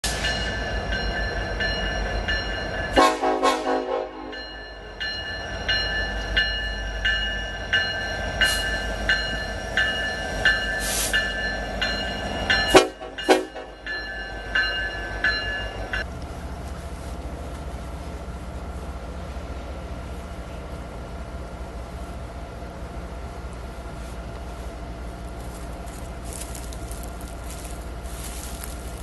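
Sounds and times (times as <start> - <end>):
train rumbling: 0.0 - 29.0
bell ringing: 0.2 - 3.0, 4.2 - 16.1
locomotive horn blasts: 2.9 - 4.4, 12.6 - 13.8.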